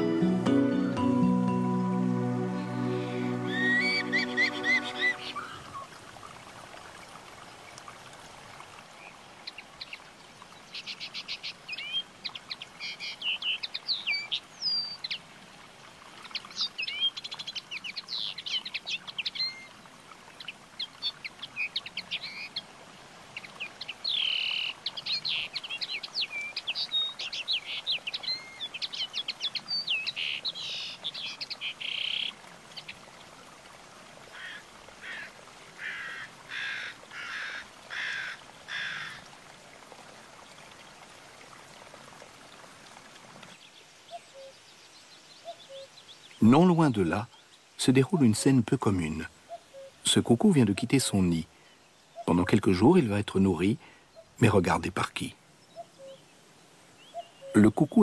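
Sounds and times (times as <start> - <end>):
birds chirping: 0.0 - 6.1, 23.4 - 33.0, 43.6 - 58.0.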